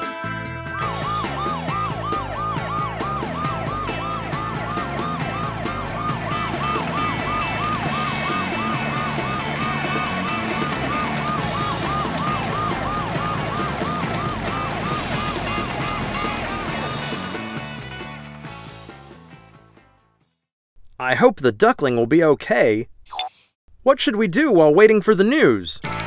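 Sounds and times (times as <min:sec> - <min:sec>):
background music: 0:00.0 - 0:20.0
ambulance siren wailing: 0:00.9 - 0:17.8.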